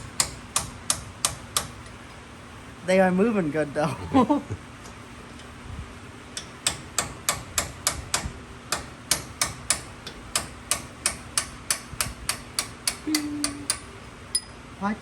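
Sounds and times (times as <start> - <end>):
hammer striking metal punch: 0.0 - 1.8, 6.4 - 14.5.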